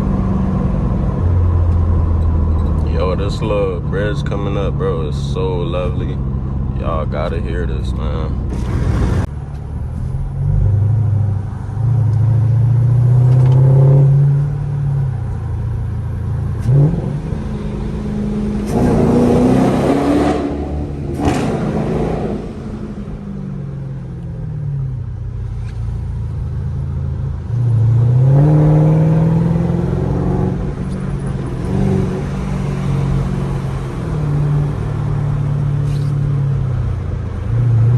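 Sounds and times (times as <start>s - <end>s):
loud exhaust revving: 16.6s - 23.2s.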